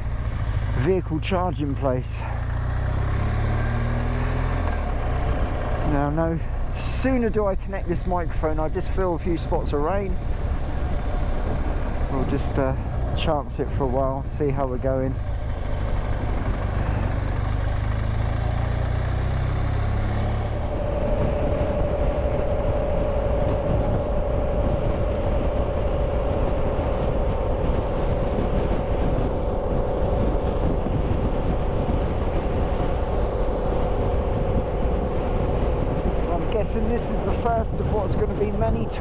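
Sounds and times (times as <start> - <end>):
motorcycle engine: 0.0 - 1.1, 1.7 - 6.8, 14.2 - 39.0
wind and road noise: 0.0 - 39.0.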